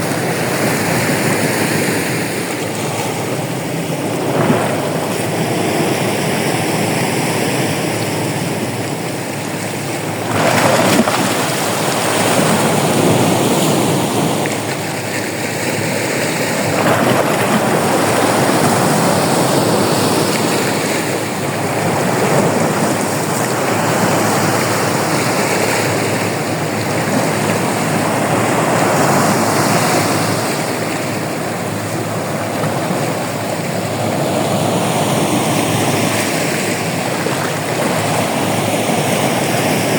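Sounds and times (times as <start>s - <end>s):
waves breaking on a beach: 0.0s - 39.9s.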